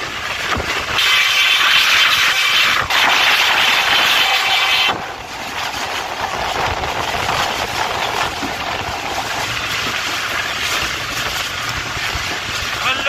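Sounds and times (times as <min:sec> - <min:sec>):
loud hiss: 0:00.4 - 0:13.0
passenger train running: 0:03.9 - 0:13.0.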